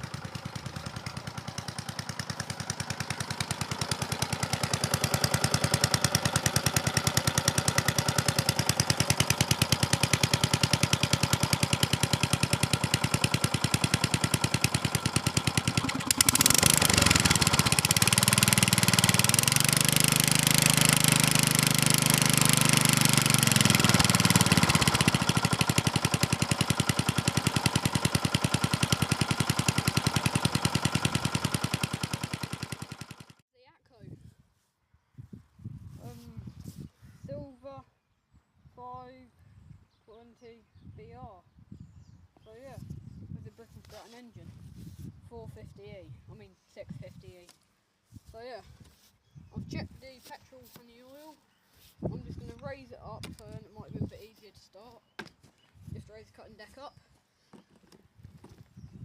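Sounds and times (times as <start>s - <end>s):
lawnmower engine running: 0.0s - 33.4s.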